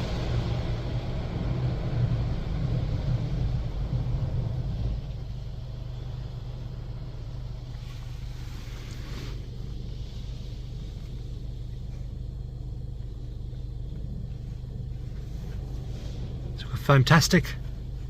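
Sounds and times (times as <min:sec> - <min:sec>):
car wash humming: 0:00.0 - 0:18.0
spray hissing: 0:07.8 - 0:11.3.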